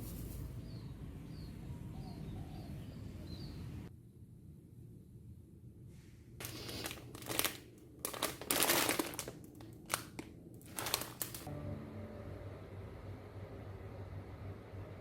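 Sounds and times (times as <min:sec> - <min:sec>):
crinkling rustling handling noise: 0:06.4 - 0:11.5.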